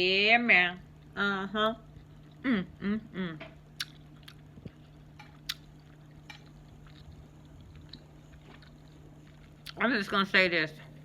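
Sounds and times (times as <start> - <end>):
steady low hum: 0.0 - 11.0
person chewing food: 3.6 - 9.8
wet mouth clicks and smacks: 3.8 - 4.4.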